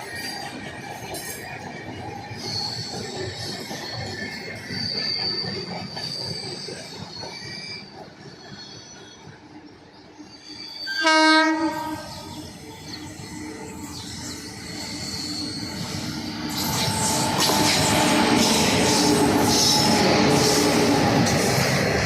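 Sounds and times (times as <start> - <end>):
electric train rumbling past: 0.0 - 22.0
high wheel squeal: 2.2 - 9.4, 10.2 - 22.0
train horn blast: 10.9 - 12.3.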